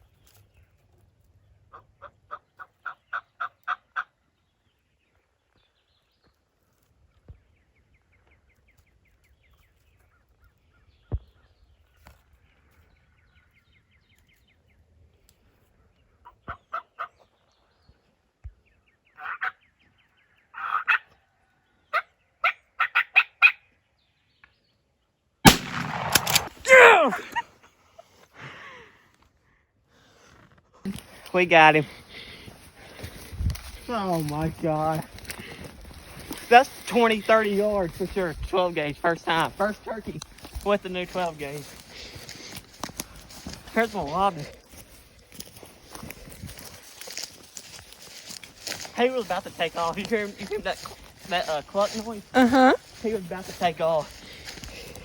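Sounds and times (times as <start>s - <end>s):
turkey yelps and clucks: 1.7s - 4.2s, 16.3s - 17.2s, 19.2s - 19.6s, 20.5s - 21.2s, 21.9s - 23.6s
shotgun shot: 25.5s - 26.7s.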